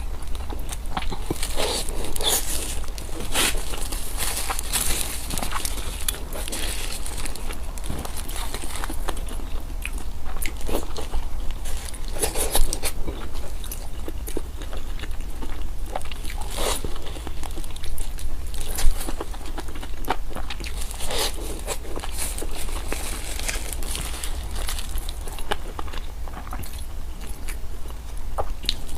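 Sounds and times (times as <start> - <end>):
chewing crunchy food: 0.0 - 28.9.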